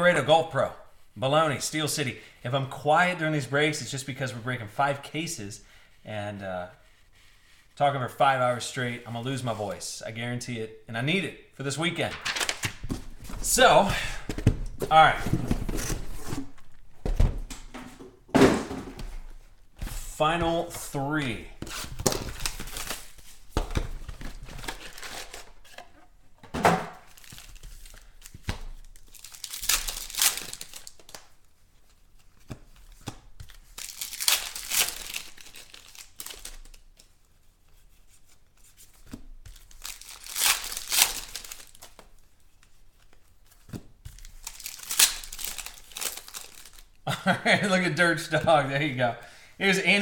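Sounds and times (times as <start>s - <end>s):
wrappers tearing and crinkling: 12.2s - 12.8s, 27.0s - 31.3s, 33.6s - 37.0s, 39.6s - 42.0s, 44.2s - 47.0s.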